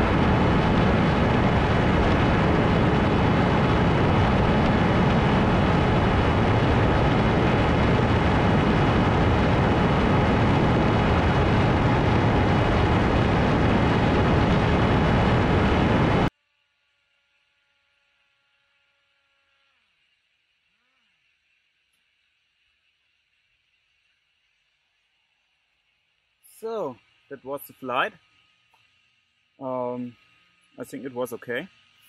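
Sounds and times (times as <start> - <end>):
wind rushing: 0.0 - 16.3
electric motor and propeller whine: 0.0 - 32.0.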